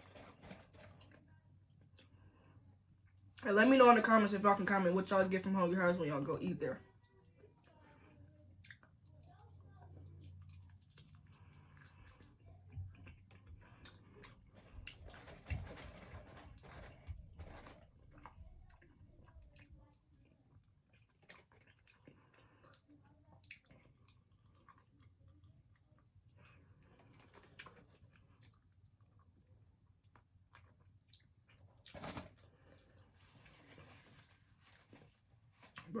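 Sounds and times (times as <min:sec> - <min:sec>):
person chewing: 0:08.6 - 0:17.0, 0:17.6 - 0:35.9.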